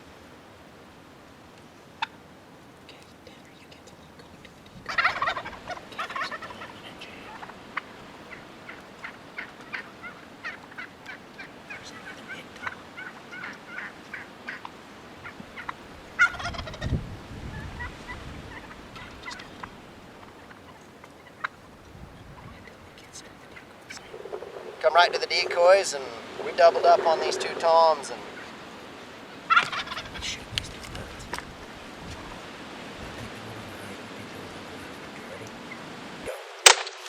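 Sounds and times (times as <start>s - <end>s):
turkey clucking: 2.0s - 2.2s, 4.2s - 35.9s
turkeys gobbling: 2.0s - 2.2s, 4.5s - 37.0s
wind on microphone: 4.6s - 6.0s, 15.2s - 20.4s, 21.6s - 36.4s.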